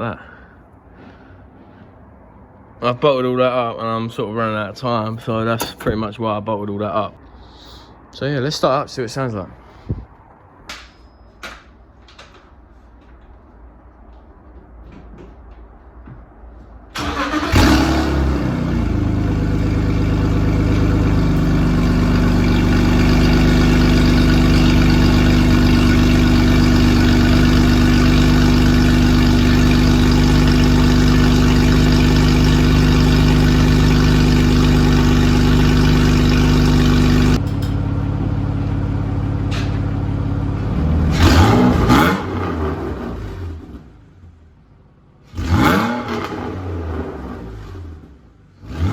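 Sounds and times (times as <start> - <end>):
car engine starting: 16.9 - 48.9
engine revving: 17.0 - 37.4, 40.6 - 43.9, 45.3 - 48.9
car engine idling loudly: 17.2 - 41.5.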